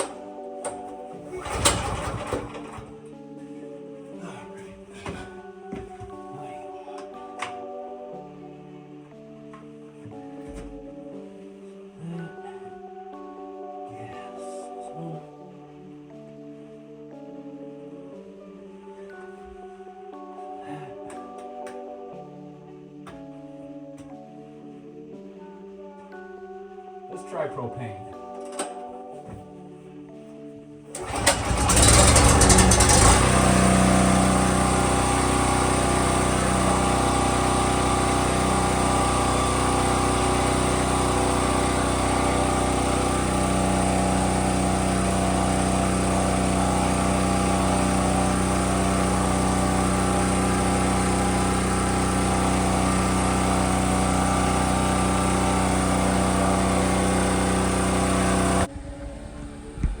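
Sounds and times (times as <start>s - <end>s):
small generator engine running: 0.0s - 3.1s, 30.9s - 58.7s.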